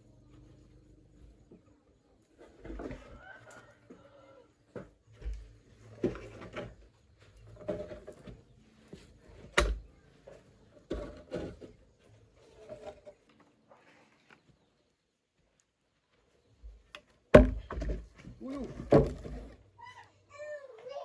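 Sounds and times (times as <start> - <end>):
objects knocking and clattering: 4.7 - 9.8, 17.3 - 19.7.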